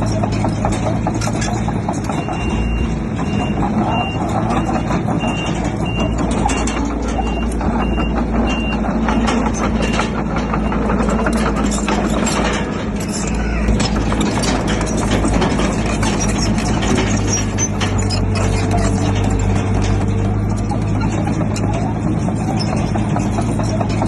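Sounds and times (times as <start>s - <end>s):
diesel engine of heavy machinery: 0.0s - 24.0s
knocks and clanks: 0.0s - 24.0s
reversing alarm beeping: 2.1s - 11.9s.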